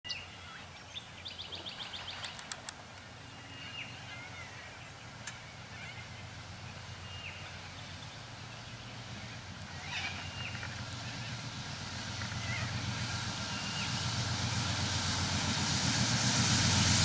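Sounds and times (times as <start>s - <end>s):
sharp clicks: 2.2s - 3.1s.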